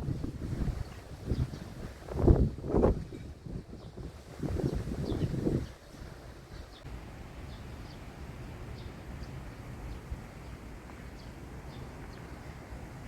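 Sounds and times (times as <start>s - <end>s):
wind rumble on microphone: 0.0s - 13.0s
small birds chirping: 8.7s - 12.6s.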